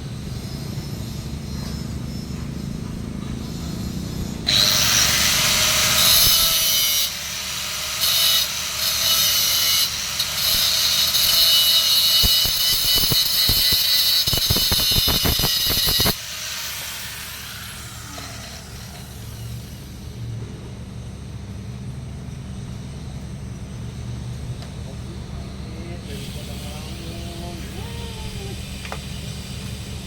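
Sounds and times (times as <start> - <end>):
angle grinder grinding steel: 0.2 - 20.2.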